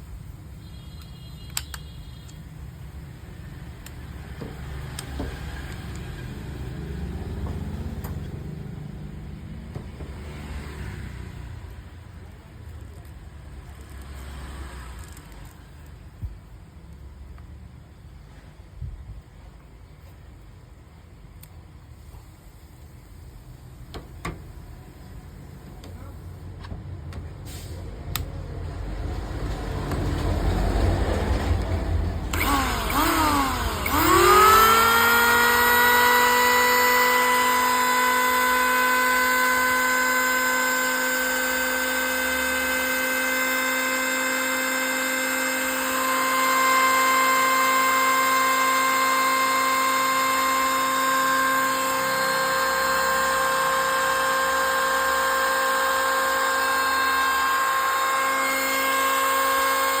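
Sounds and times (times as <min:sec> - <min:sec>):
electric planer motor whining: 0:32.3 - 1:00.0.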